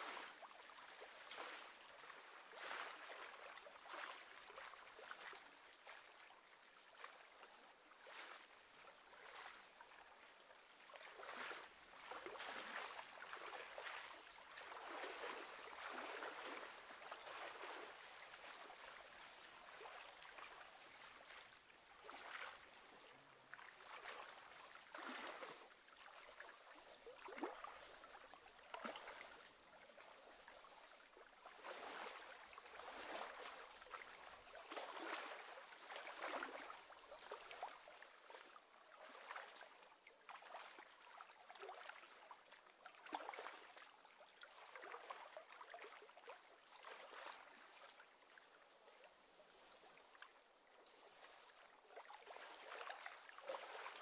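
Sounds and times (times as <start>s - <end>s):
small waves lapping and splashing: 0.0s - 54.0s.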